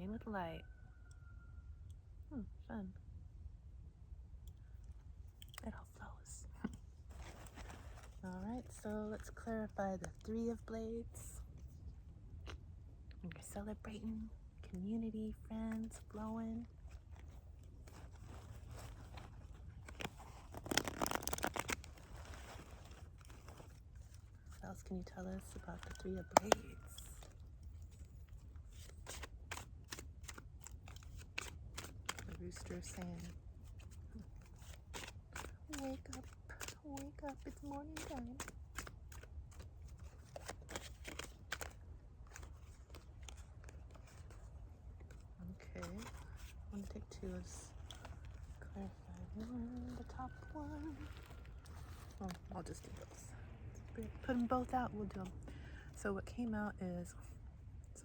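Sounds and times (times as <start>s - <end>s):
low steady rumble: 0.0s - 58.0s
cards being shuffled: 6.1s - 9.4s, 15.6s - 56.0s.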